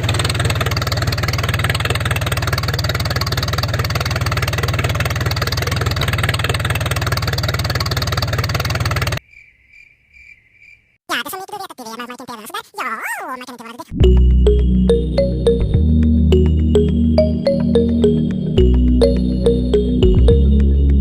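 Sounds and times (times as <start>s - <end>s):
mini tractor engine running: 0.0s - 9.2s.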